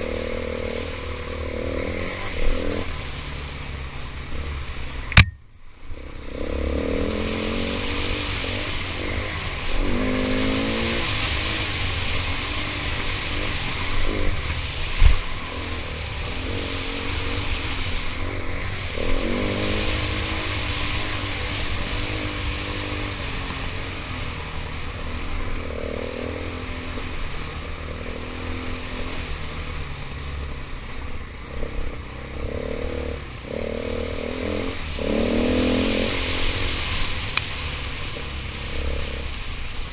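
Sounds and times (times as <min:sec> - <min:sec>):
sharp knock: 0:05.1 - 0:05.4
dirt bike engine revving: 0:06.0 - 0:39.4.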